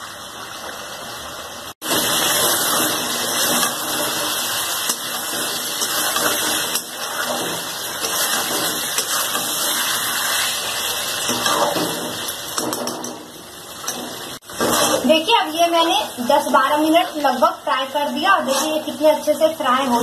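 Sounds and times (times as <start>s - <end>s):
chicken sizzling in oil: 0.0s - 20.0s
metal spatula stirring: 2.0s - 13.2s, 13.8s - 15.4s, 18.2s - 19.0s.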